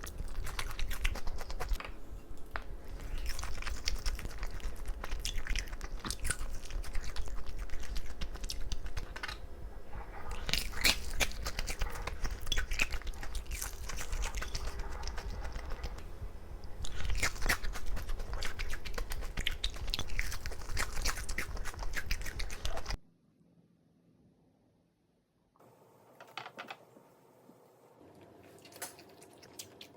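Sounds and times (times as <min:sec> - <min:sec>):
person chewing crunchy food: 0:00.0 - 0:01.8, 0:02.7 - 0:09.6, 0:10.2 - 0:23.0, 0:28.4 - 0:29.9.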